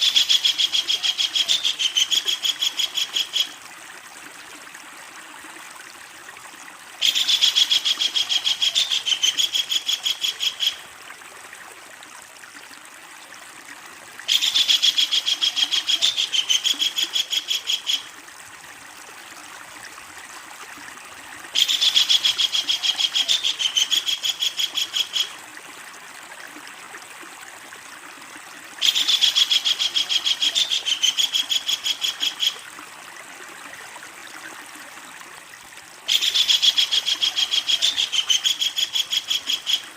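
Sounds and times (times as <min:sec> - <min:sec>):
kingfisher rattling call: 0:36.1 - 0:39.9.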